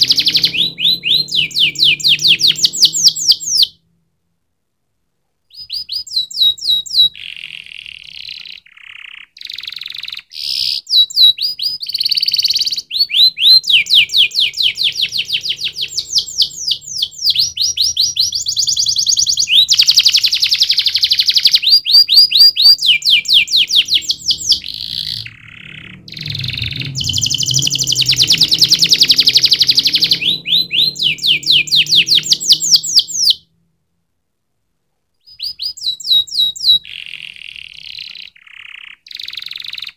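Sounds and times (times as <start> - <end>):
canary singing fast trills: 0.0 - 3.8, 5.5 - 33.5, 35.2 - 39.9.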